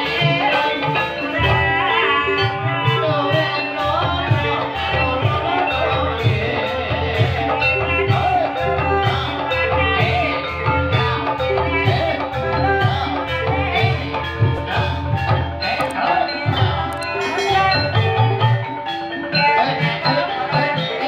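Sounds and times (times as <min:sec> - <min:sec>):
wavering melody line: 0:00.0 - 0:21.0
drum beat: 0:11.0 - 0:18.7.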